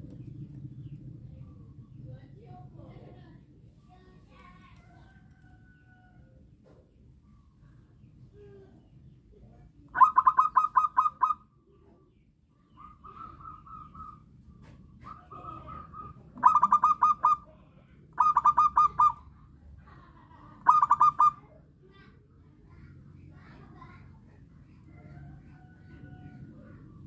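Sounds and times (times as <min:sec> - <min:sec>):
dove cooing: 0:09.9 - 0:11.4, 0:12.8 - 0:14.2, 0:15.0 - 0:17.5, 0:18.2 - 0:19.3, 0:20.6 - 0:21.4.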